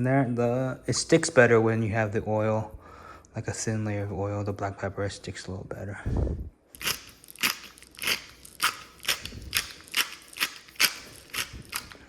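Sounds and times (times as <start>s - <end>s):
pepper mill grinding: 6.8s - 12.0s.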